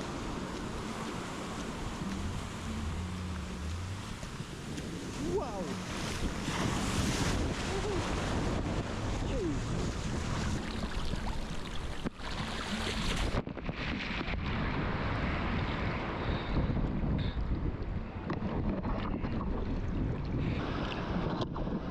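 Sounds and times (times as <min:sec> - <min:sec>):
ocean surf breaking: 0:00.0 - 0:16.3
wind buffeting microphone: 0:00.0 - 0:21.9.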